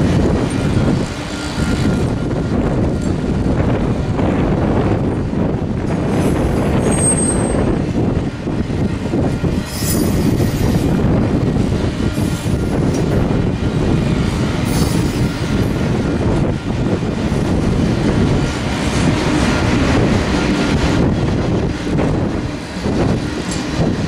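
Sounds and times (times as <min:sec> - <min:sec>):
train wheels rumbling on track: 0:00.0 - 0:24.0
high-pitched wheel squeals: 0:06.7 - 0:07.7, 0:09.7 - 0:10.9.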